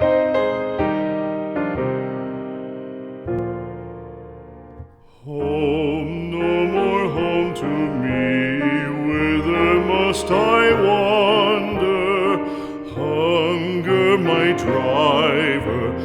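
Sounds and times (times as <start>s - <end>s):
piano accompaniment: 0.0s - 16.0s
piano chord: 0.0s - 16.0s
person singing with vibrato: 5.1s - 16.0s.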